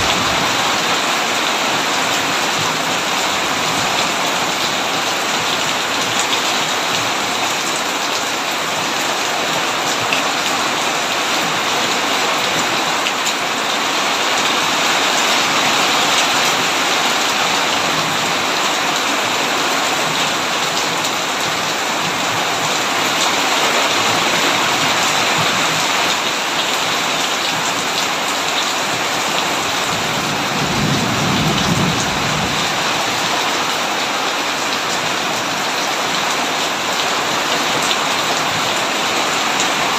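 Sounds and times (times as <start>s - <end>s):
low rumble of thunder: 0.0s - 0.9s, 30.0s - 33.0s
heavy rain on a tin roof: 0.0s - 39.9s.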